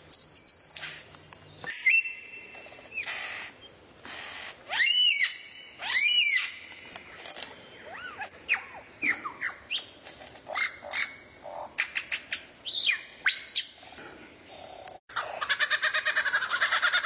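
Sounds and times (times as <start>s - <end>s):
songbird whistling and chirping: 0.1s - 3.7s, 7.6s - 10.0s, 11.9s - 13.8s.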